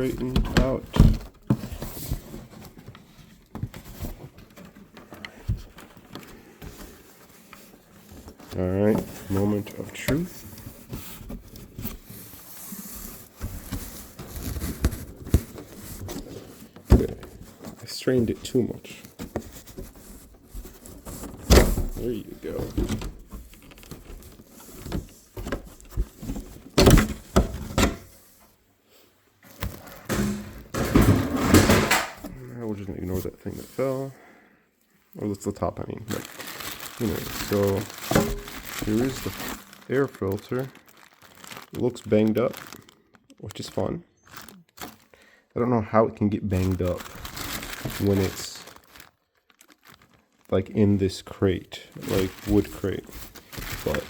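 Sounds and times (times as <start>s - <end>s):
packing rustling: 0.0s - 28.4s, 29.3s - 32.4s, 35.4s - 45.4s, 46.5s - 54.0s
wooden knocks and thumps: 29.5s - 32.3s
wooden board falling: 29.6s - 32.3s.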